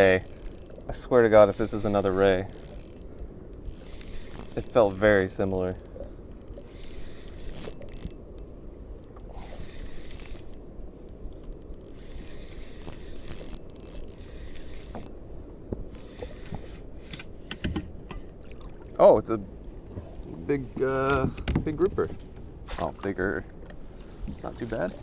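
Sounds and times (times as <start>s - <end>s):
fishing reel clicking and whirring: 0.0s - 15.2s.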